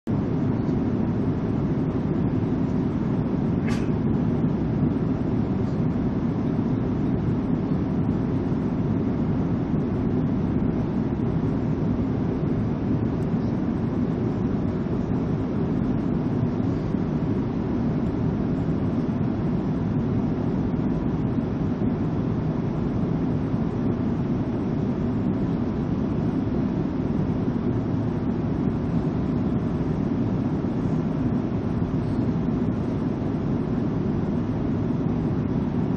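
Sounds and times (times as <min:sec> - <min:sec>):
airliner engine and air noise: 0:00.1 - 0:35.9.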